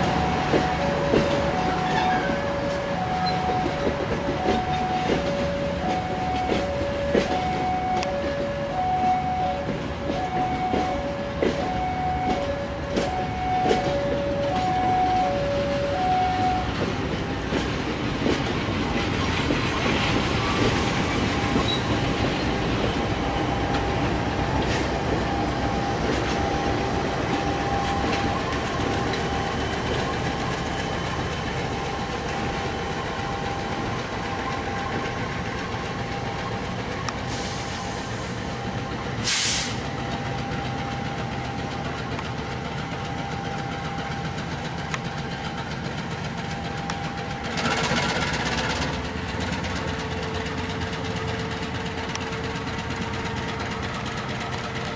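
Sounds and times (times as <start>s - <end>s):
two-note warning signal: 0.0s - 17.6s
train wheels rumbling and clicking: 0.0s - 54.9s
short loud hiss: 39.2s - 39.8s.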